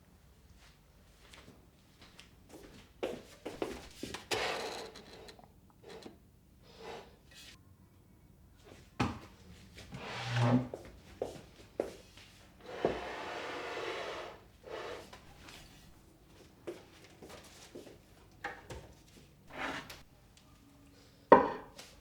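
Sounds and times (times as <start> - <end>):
drawer sliding rub: 12.6 - 15.1, 19.5 - 20.0.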